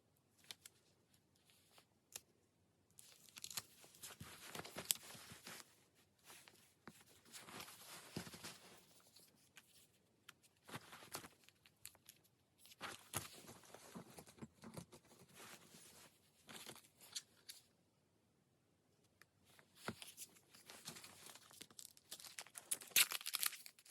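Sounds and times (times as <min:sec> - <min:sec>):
paper rustling and crinkling: 0:03.0 - 0:17.7, 0:19.6 - 0:23.9.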